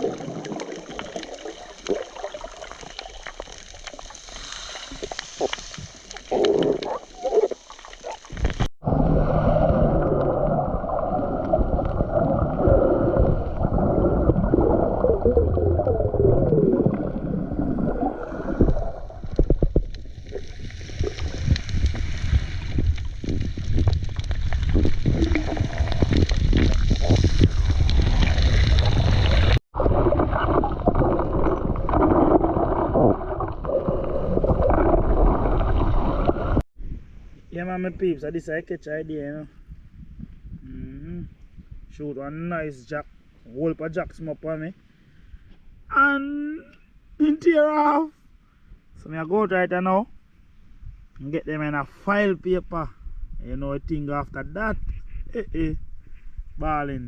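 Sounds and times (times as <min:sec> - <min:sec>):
underwater gurgling and rushing: 0:00.0 - 0:37.3.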